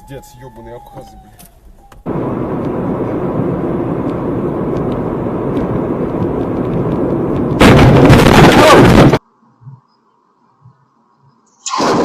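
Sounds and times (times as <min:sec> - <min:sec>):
muffled car driving noise: 0:00.0 - 0:11.5
loud distorted noise: 0:07.6 - 0:09.2.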